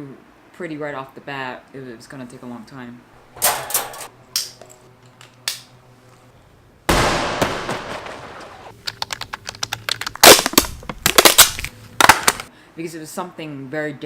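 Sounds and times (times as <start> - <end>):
fast clicks and cracks: 8.7 - 12.5.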